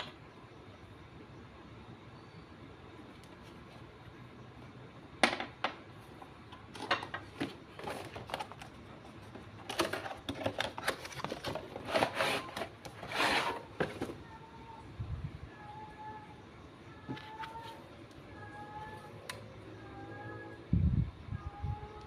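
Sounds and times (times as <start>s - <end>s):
cardboard and plastic rustling: 6.6s - 14.4s.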